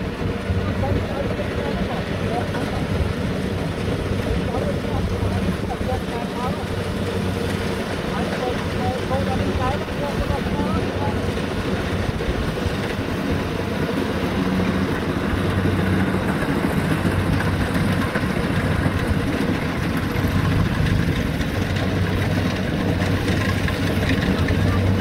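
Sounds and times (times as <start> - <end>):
engine humming steadily: 0.0 - 25.0
machinery noise: 0.0 - 25.0.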